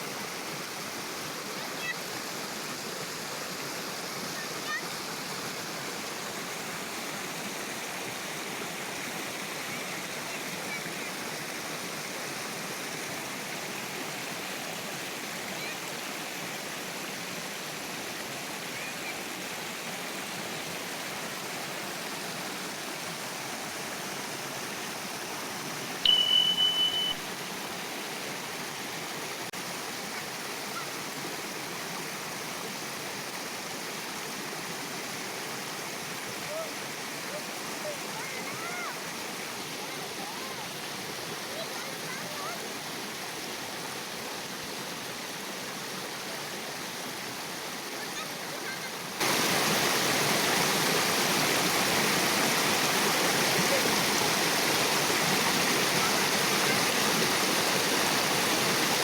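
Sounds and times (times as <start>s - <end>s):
river water rushing: 0.0s - 59.0s
high-pitched beep: 26.0s - 27.5s.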